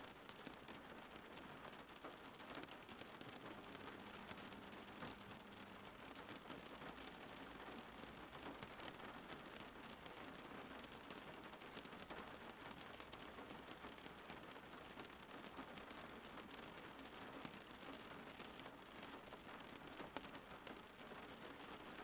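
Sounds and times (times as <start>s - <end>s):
rain falling: 0.0s - 22.0s
raindrops ticking: 0.1s - 22.0s.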